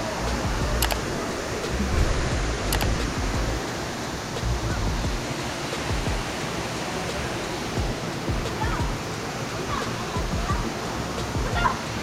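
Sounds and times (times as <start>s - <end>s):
low rumbling on microphone: 0.0s - 6.4s
waterfall rushing: 0.0s - 12.0s.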